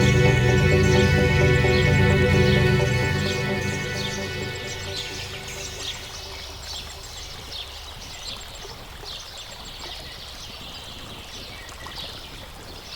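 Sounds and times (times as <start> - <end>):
starlings chattering: 0.0 - 8.2.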